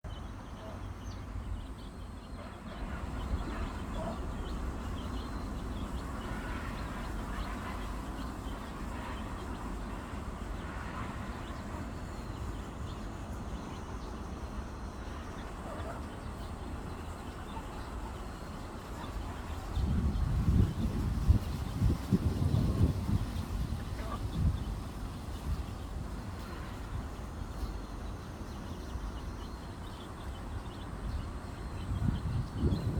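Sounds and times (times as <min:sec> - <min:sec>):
hen and chicks peeping: 0:00.1 - 0:32.9
steady low rumble: 0:29.9 - 0:32.9.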